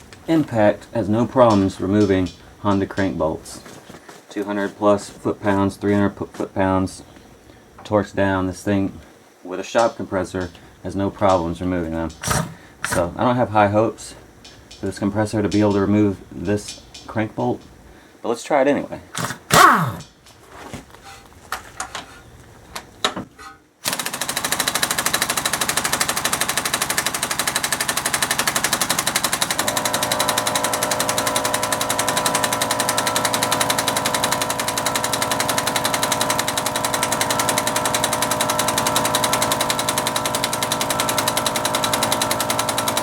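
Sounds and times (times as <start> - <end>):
steady hum: 0.0 - 23.8
pneumatic impact wrench hammering: 1.2 - 3.2, 12.1 - 13.1, 14.3 - 17.9, 19.2 - 20.2, 23.1 - 43.0.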